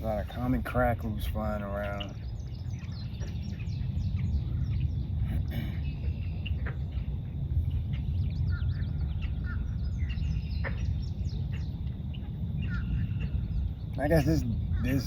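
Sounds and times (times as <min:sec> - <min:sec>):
birds chirping and calling: 0:00.0 - 0:15.0
steady low rumble: 0:00.0 - 0:15.0.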